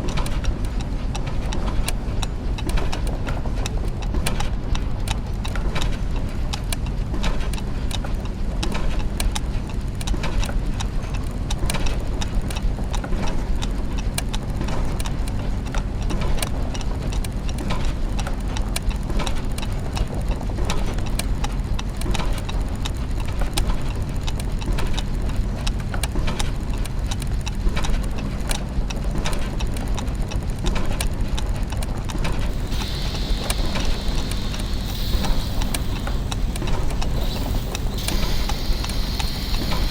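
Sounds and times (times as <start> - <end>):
clockwork gears ticking: 0.0 - 39.9
low machinery hum: 18.9 - 39.9
high hiss: 32.4 - 39.9.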